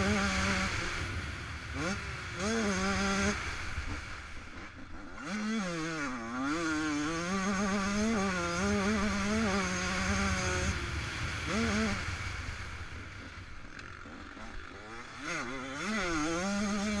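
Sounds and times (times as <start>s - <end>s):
two-stroke motocross engine revving: 0.0s - 17.0s
wind rush: 10.4s - 13.6s.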